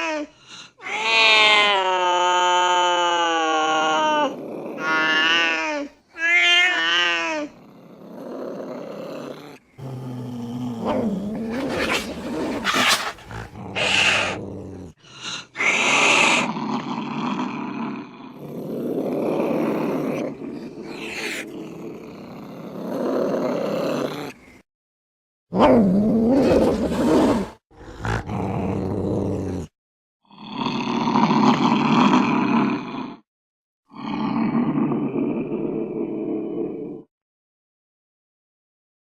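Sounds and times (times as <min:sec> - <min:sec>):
cats growling and hissing: 0:00.0 - 0:24.7, 0:25.5 - 0:33.2, 0:33.9 - 0:37.1
cats yowling: 0:00.8 - 0:05.6.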